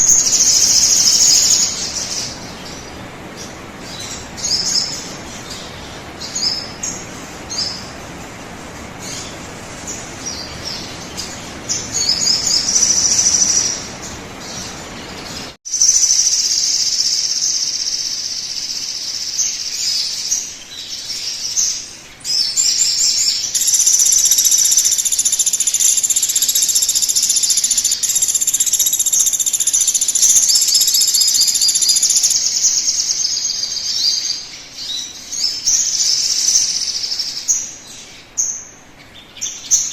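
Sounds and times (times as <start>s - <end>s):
bird trilling: 0.0s - 2.4s, 10.7s - 14.8s, 23.2s - 34.4s
background hiss: 0.0s - 39.9s
bird chirping: 0.0s - 39.9s.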